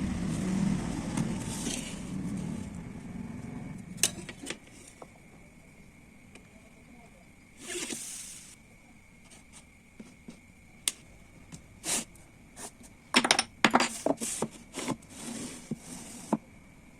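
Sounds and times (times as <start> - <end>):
wood scraping: 0.2 - 2.8, 7.6 - 8.6, 13.7 - 16.4
wood and tools clicking and knocking: 12.8 - 15.1.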